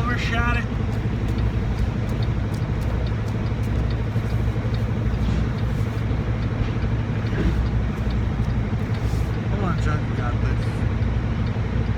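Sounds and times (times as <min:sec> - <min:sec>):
diesel truck engine running: 0:00.0 - 0:11.9
faint light ticking: 0:00.6 - 0:06.5, 0:07.2 - 0:09.9.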